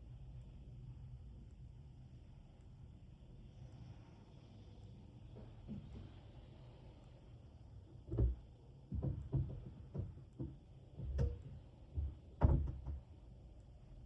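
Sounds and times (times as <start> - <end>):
dull knocks and thumps: 8.1 - 13.1.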